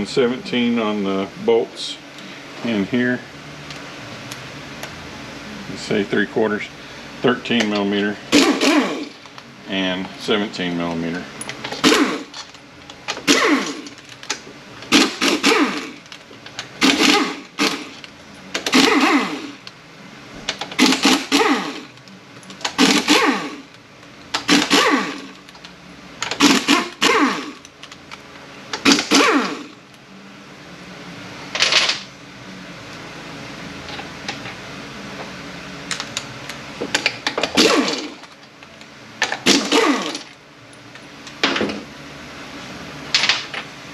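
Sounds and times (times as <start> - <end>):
impact wrench bursts: 8.3 - 9.2, 11.7 - 12.4, 13.2 - 14.0, 14.8 - 16.1, 16.8 - 18.0, 18.6 - 19.6, 20.8 - 21.9, 22.6 - 23.7, 24.3 - 25.4, 26.3 - 27.6, 28.8 - 29.8, 37.4 - 38.3, 39.3 - 40.3.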